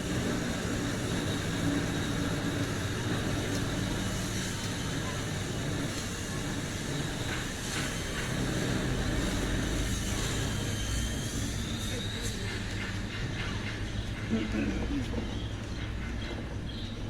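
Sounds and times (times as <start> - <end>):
arc welding hiss: 0.0 - 13.1.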